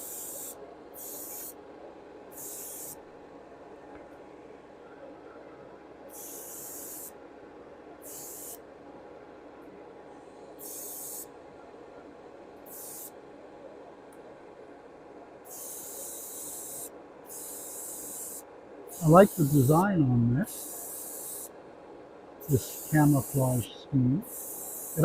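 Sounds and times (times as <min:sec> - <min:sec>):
airbrush spraying hiss: 0:00.0 - 0:01.6, 0:02.3 - 0:03.0, 0:06.1 - 0:07.1, 0:08.0 - 0:08.6, 0:10.6 - 0:11.3, 0:12.7 - 0:13.1, 0:15.5 - 0:19.8, 0:20.4 - 0:21.6, 0:22.4 - 0:25.0
compressor humming: 0:19.0 - 0:20.5, 0:22.4 - 0:24.2.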